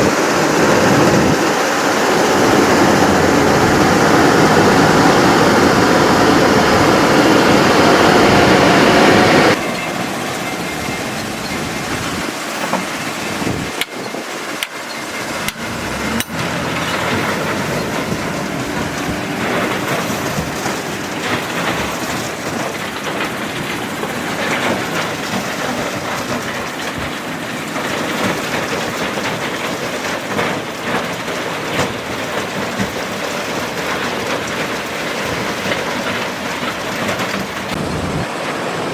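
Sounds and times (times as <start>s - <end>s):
heavy machinery rumble: 0.0s - 38.9s.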